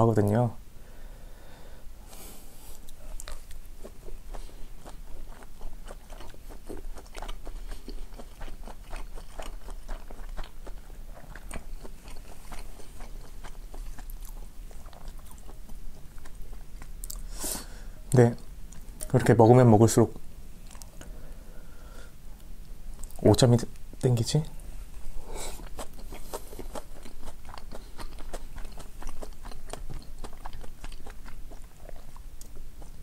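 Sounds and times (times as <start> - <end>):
person chewing food: 2.2 - 19.2, 20.2 - 23.2, 24.9 - 33.0.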